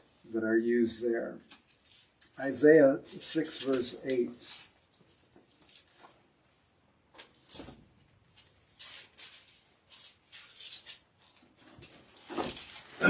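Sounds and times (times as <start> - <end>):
book pages rustling: 3.1 - 6.4, 7.2 - 13.0.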